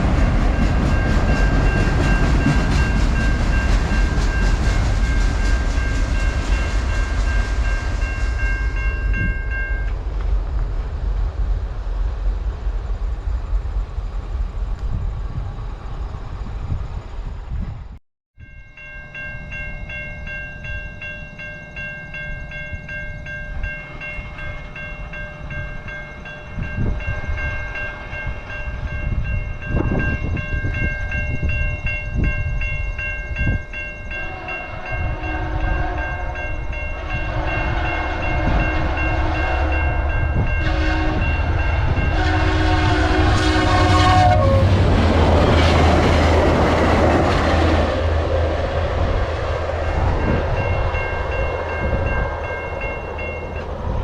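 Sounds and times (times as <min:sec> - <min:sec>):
level crossing warning bell: 0:00.0 - 0:09.9, 0:18.4 - 0:43.4, 0:49.9 - 0:54.0
train passing with diesel rumble: 0:00.0 - 0:54.0
train horn blasts: 0:34.1 - 0:54.0.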